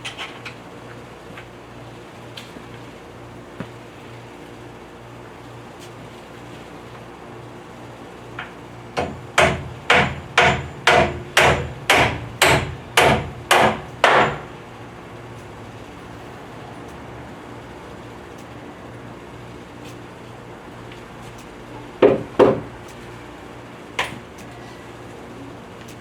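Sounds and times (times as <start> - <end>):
hammer driving nail into wood: 9.0 - 14.4.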